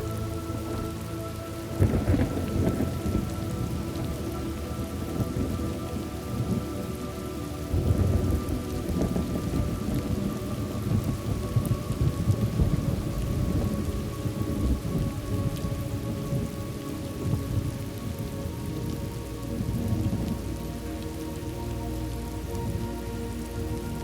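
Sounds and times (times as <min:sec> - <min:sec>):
steady rain: 0:00.0 - 0:24.0
rolling thunder: 0:01.7 - 0:07.0, 0:07.6 - 0:21.1.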